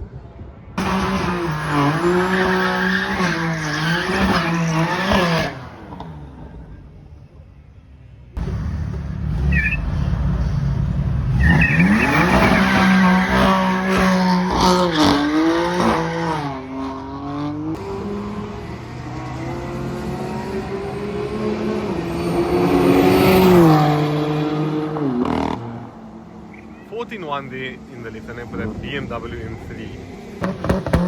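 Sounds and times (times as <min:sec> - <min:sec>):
drag racing cars accelerating: 0:00.7 - 0:07.0, 0:08.4 - 0:31.0.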